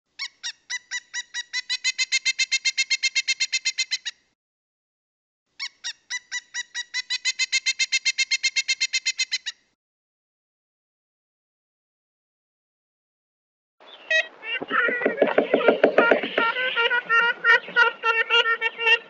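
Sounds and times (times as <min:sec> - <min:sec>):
woodpecker calling: 0:00.2 - 0:04.2, 0:05.6 - 0:09.6, 0:13.8 - 0:19.0.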